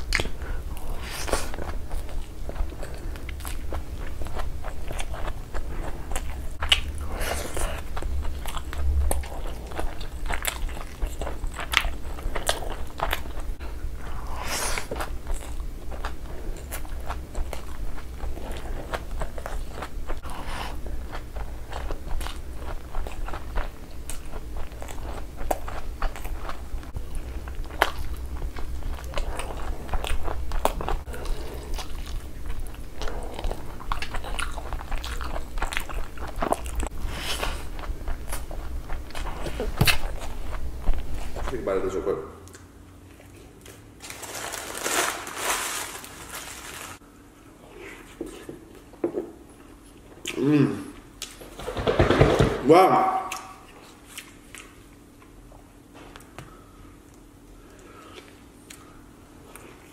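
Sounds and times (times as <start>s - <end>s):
sharp mouth clicks and smacks: 0.0s - 0.4s
person chewing food: 0.0s - 44.1s, 53.3s - 59.9s.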